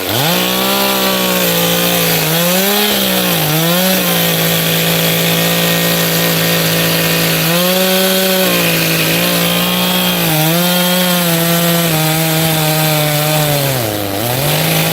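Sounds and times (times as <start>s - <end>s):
chainsaw cutting wood: 0.0s - 14.9s.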